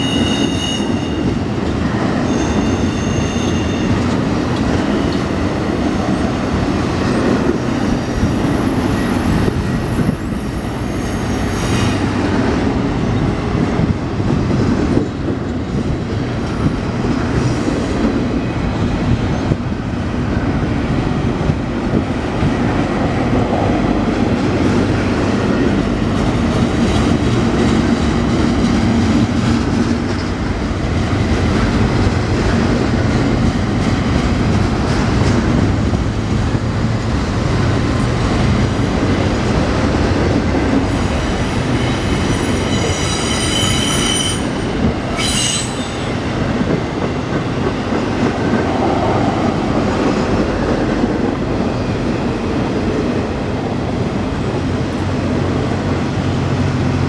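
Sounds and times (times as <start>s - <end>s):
freight train rumbling past: 0.0s - 57.0s
high-pitched wheel squeal: 2.3s - 4.0s, 41.7s - 46.2s.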